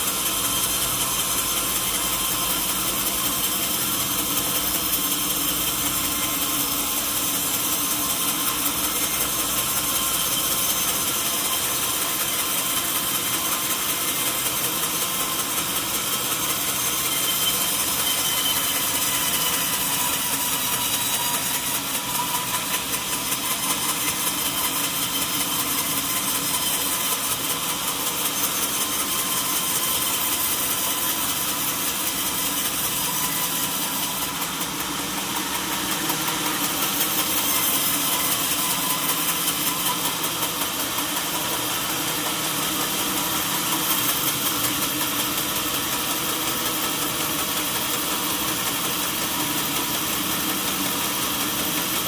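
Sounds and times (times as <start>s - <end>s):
sawmill motor drone with hiss: 0.0s - 52.0s.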